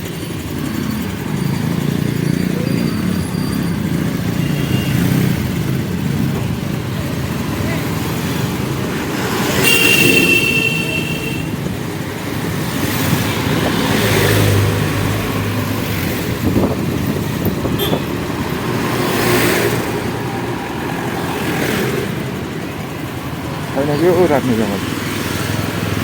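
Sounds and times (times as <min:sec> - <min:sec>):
road traffic: 0:00.0 - 0:26.0
wind noise: 0:15.3 - 0:18.9.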